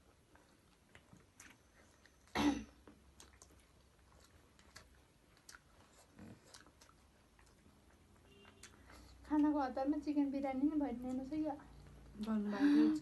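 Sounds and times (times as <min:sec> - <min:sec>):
chewing sounds: 0:00.0 - 0:09.6
person coughing: 0:02.3 - 0:02.8.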